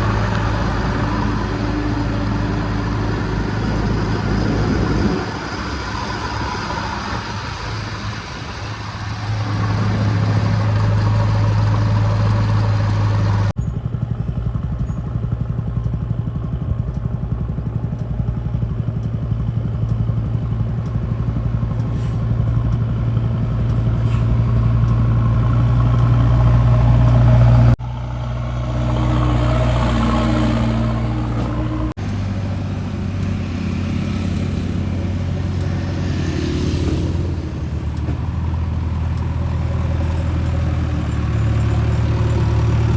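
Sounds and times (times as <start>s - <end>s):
heavy diesel engine under load: 0.0s - 42.9s.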